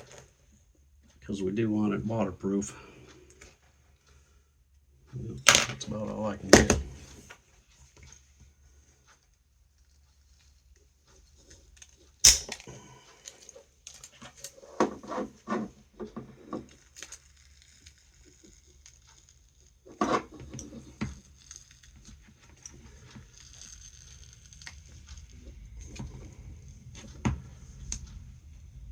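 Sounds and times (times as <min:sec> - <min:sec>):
clicks and scrapes: 0:09.0 - 0:28.2.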